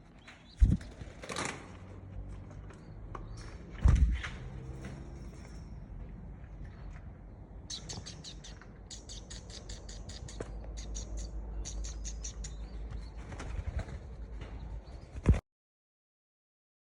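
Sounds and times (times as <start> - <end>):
birds chirping rapidly: 0.0 - 1.4, 2.1 - 4.8, 6.7 - 15.4.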